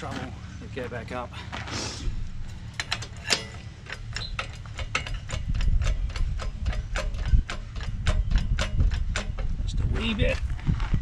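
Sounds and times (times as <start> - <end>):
hoist ratchet clicking: 2.3 - 9.7.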